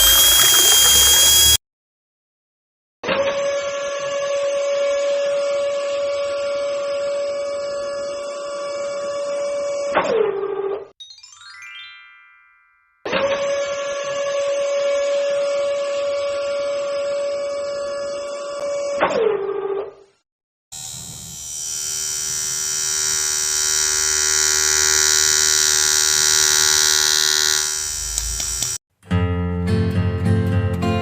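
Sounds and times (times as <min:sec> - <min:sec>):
small motor whining: 0:00.0 - 0:01.6, 0:20.8 - 0:28.8.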